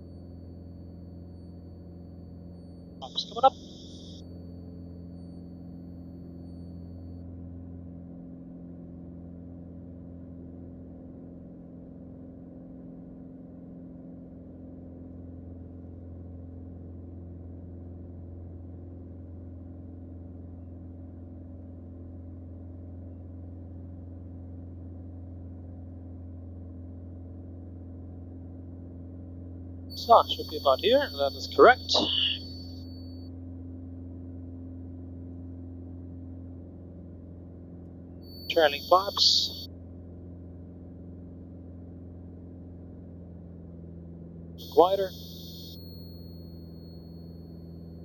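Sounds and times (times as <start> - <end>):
aircraft engine and propeller drone: 29.9 - 32.6, 38.3 - 39.6.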